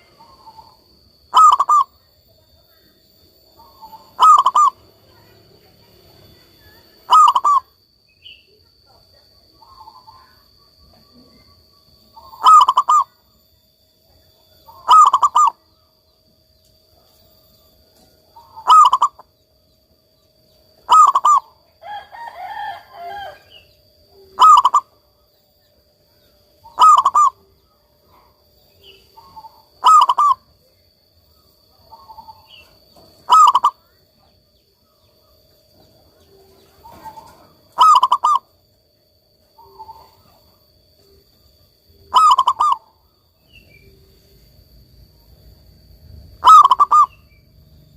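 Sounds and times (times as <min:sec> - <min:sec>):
dove cooing: 0:00.0 - 0:02.0, 0:03.4 - 0:13.4, 0:14.5 - 0:15.8, 0:18.2 - 0:19.4, 0:20.8 - 0:25.2, 0:26.6 - 0:30.6, 0:31.7 - 0:38.8, 0:39.4 - 0:44.6, 0:45.2 - 0:47.9
soft dove calls: 0:00.0 - 0:02.0, 0:03.6 - 0:04.9, 0:07.0 - 0:07.7, 0:12.2 - 0:13.2, 0:14.6 - 0:15.6, 0:18.3 - 0:19.2, 0:20.8 - 0:21.5, 0:24.2 - 0:25.0, 0:26.6 - 0:27.5, 0:28.9 - 0:30.5, 0:31.8 - 0:33.9, 0:35.8 - 0:38.6, 0:42.0 - 0:43.0, 0:46.4 - 0:47.4.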